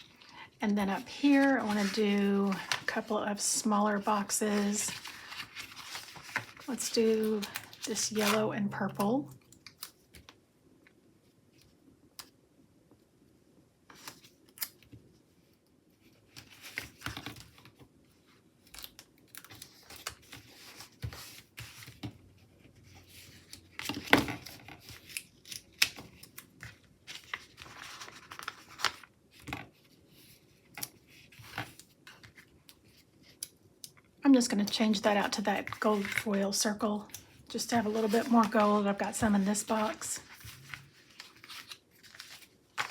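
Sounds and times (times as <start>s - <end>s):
paper rustling: 0.0s - 8.5s, 22.7s - 33.4s, 35.3s - 36.6s, 37.5s - 42.9s.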